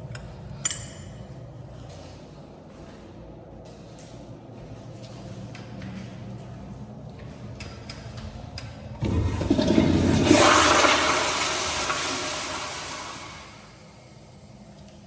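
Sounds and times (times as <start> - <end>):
toilet flushing: 8.9 - 14.5.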